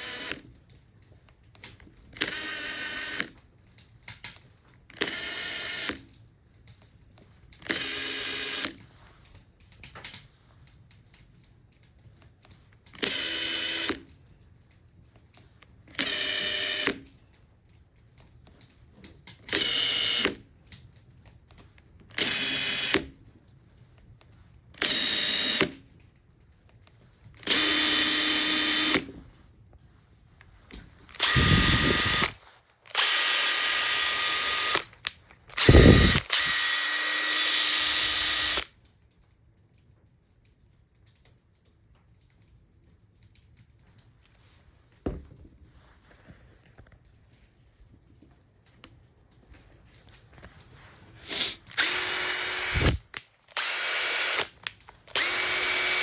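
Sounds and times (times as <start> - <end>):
impact driver motor bursts: 0.0 - 0.4, 2.2 - 3.3, 5.0 - 6.0, 7.6 - 8.8, 13.0 - 14.1, 15.9 - 17.0, 19.4 - 20.4, 22.1 - 23.1, 24.8 - 25.7, 27.4 - 29.1, 31.1 - 38.7, 51.2 - 56.0.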